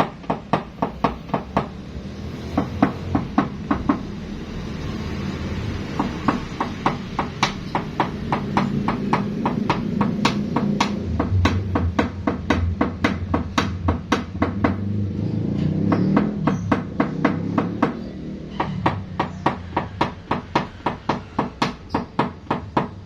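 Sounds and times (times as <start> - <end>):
hammer tapping metal: 5.9 - 14.8.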